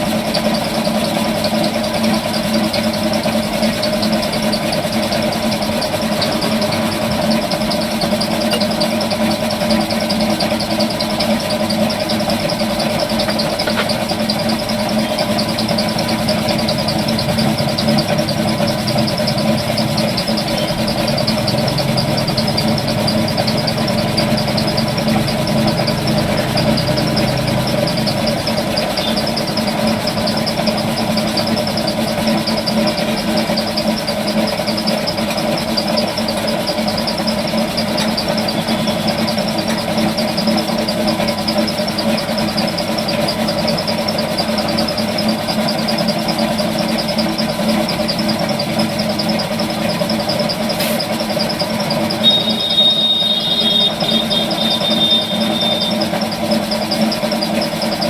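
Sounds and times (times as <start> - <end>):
engine humming steadily: 0.0 - 58.0.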